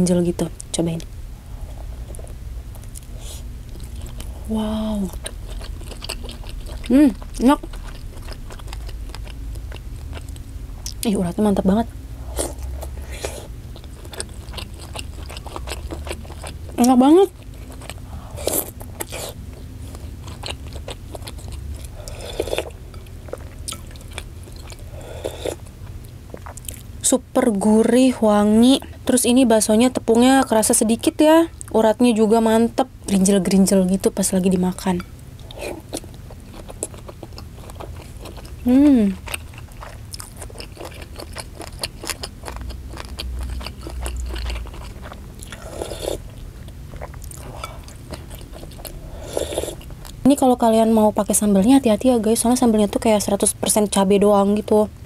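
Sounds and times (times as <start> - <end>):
chewing mouth sounds: 5.1 - 11.1, 12.3 - 26.9, 35.4 - 50.3.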